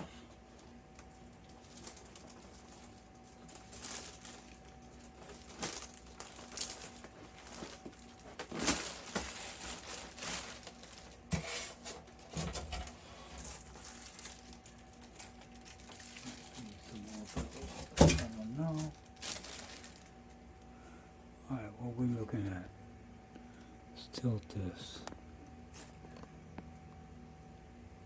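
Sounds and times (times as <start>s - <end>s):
packing material rustling: 0.4s - 20.4s.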